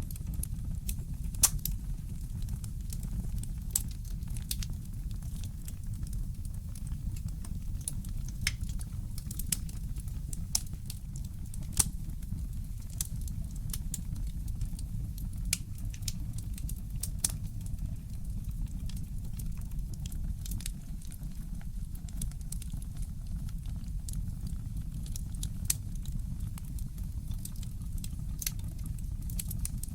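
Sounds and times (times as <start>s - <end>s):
fireplace crackling: 0.1s - 21.2s, 27.4s - 28.7s.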